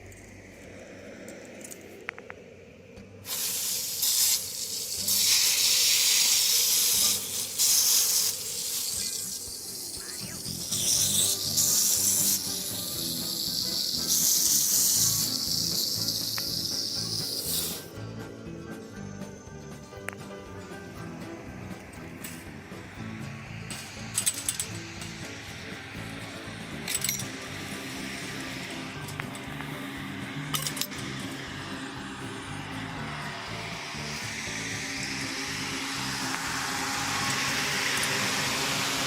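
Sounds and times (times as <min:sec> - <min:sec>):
water spraying from garden hose: 0:03.3 - 0:18.0, 0:32.4 - 0:39.0.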